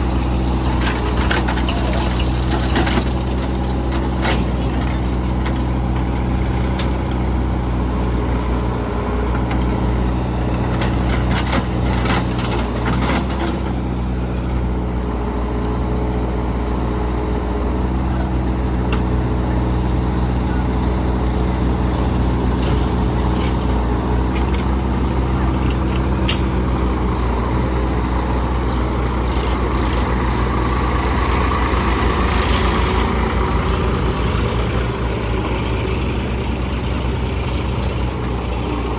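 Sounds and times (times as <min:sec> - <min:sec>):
heavy diesel engines running: 0:00.0 - 0:38.9
metallic clanks and rattles: 0:10.6 - 0:13.8.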